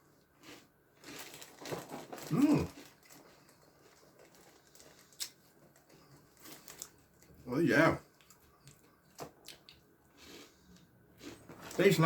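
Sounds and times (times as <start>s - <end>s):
plastic bag crinkling: 0.9s - 7.5s, 11.4s - 12.0s.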